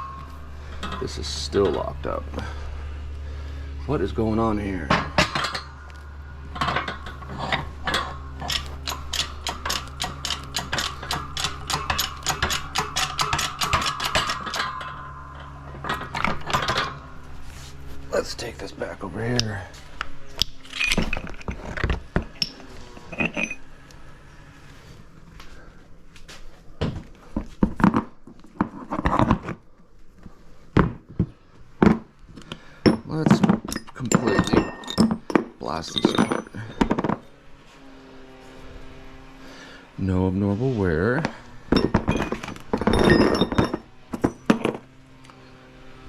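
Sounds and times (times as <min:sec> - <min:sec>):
metallic clicking and ratcheting: 0:00.0 - 0:02.2, 0:04.9 - 0:17.1
metal parts and tools clanking: 0:00.0 - 0:02.7, 0:03.7 - 0:19.7, 0:20.3 - 0:24.2, 0:31.8 - 0:37.4, 0:41.2 - 0:45.5
steady low hum: 0:00.0 - 0:46.0.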